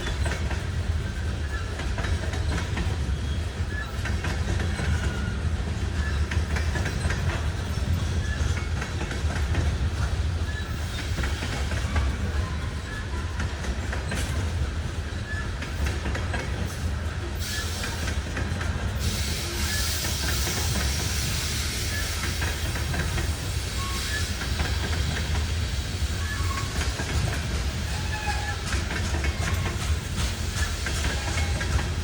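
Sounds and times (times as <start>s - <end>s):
freight train rolling past: 0.0s - 32.0s
hiss: 19.0s - 27.7s
wheel squeals: 19.1s - 25.5s, 26.1s - 32.0s
wheels clicking over rail joints: 26.2s - 32.0s.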